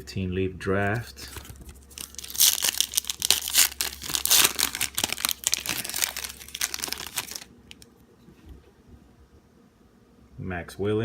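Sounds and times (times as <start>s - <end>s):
wrapper crinkling and tearing: 0.8s - 7.9s.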